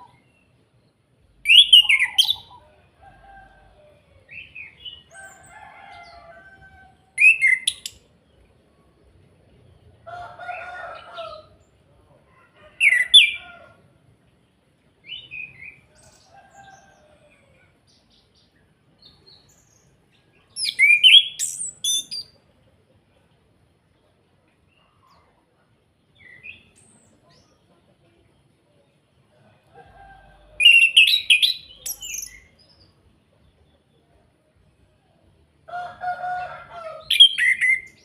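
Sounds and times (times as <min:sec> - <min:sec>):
lower-pitched bird call: 0:01.4 - 0:02.7, 0:30.5 - 0:32.5
thrush singing whistled phrases: 0:01.5 - 0:02.5, 0:07.2 - 0:08.0.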